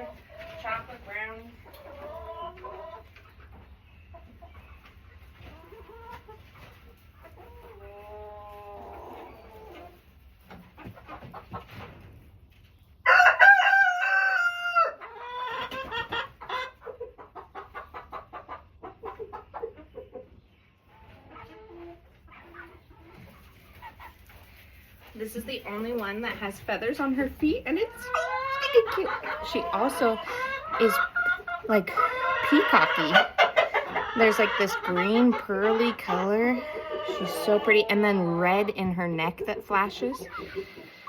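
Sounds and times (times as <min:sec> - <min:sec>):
chickens clucking: 0:00.0 - 0:41.0
rooster crowing: 0:13.0 - 0:15.0.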